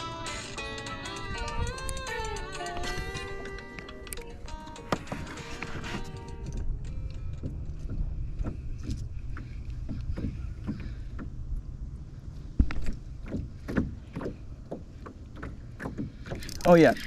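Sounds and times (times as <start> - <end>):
wind rumble on microphone: 1.2 - 16.6.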